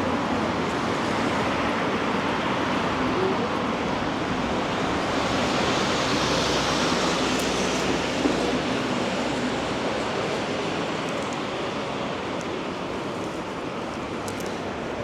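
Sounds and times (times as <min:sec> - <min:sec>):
traffic on wet street: 0:00.0 - 0:15.0.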